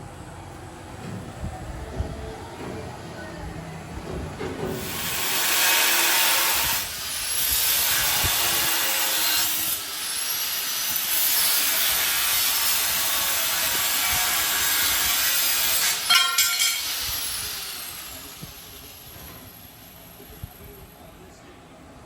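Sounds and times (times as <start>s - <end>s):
power tool grinding steel: 4.7s - 18.7s.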